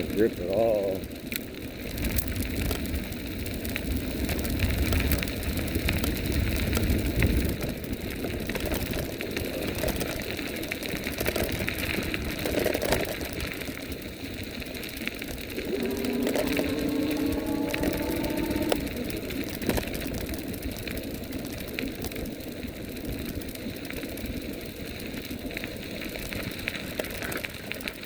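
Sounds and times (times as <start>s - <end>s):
wind rumbling on microphone: 0.0s - 28.0s
small clicks: 15.4s - 22.2s.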